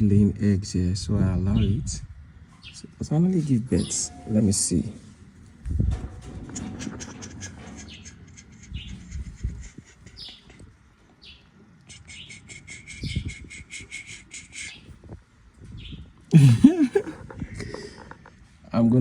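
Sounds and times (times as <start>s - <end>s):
birds chirping: 1.5s - 4.7s, 6.3s - 15.1s, 15.7s - 18.3s.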